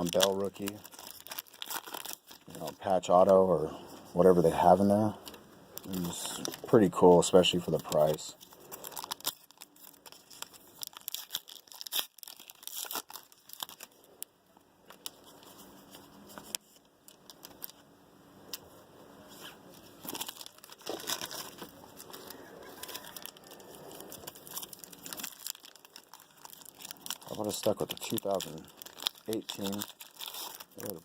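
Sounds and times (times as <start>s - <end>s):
card pack wrappers tearing and crinkling: 0.0s - 3.3s, 4.1s - 14.2s, 14.9s - 31.0s.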